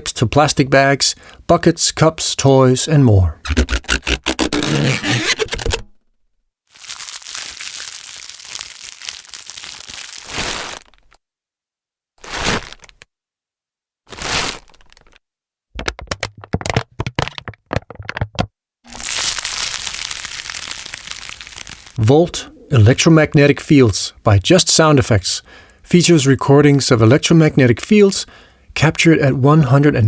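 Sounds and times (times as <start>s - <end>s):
crinkling plastic: 6.7s - 11.2s, 12.2s - 13.1s, 14.1s - 15.2s, 18.9s - 22.0s
plastic rustles: 6.7s - 11.2s, 12.2s - 13.1s, 14.1s - 15.2s, 18.9s - 22.0s.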